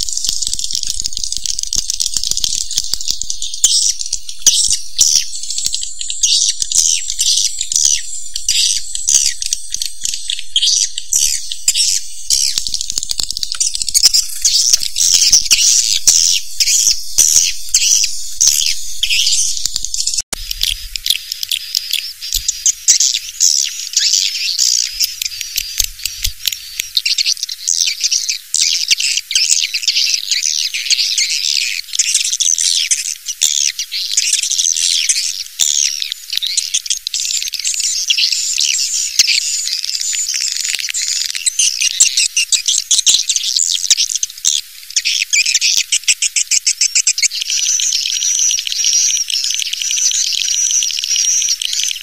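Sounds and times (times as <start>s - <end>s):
swiftlets twittering and chirping: 0.0s - 52.0s.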